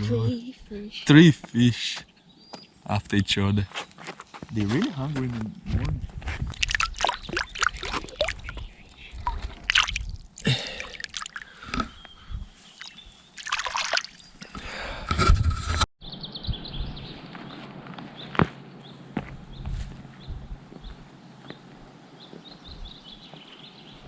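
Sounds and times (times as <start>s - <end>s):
water splashing and sloshing: 6.5s - 11.9s, 12.6s - 14.5s.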